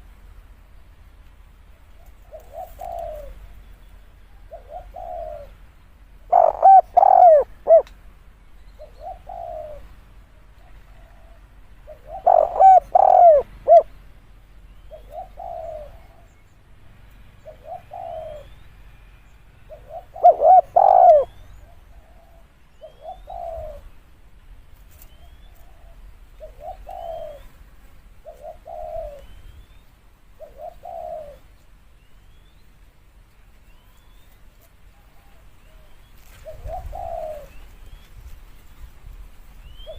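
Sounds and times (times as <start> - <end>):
dove cooing: 1.8 - 3.6, 4.2 - 5.6, 6.2 - 7.9, 8.8 - 14.0, 14.8 - 16.4, 17.4 - 18.6, 19.6 - 24.0, 25.2 - 27.6, 28.2 - 29.6, 30.3 - 31.6, 34.9 - 38.3, 39.6 - 39.9.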